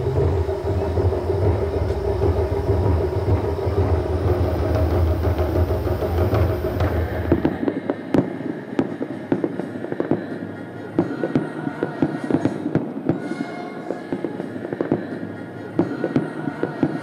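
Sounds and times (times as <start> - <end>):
distant fireworks bangs: 0.0 - 10.4.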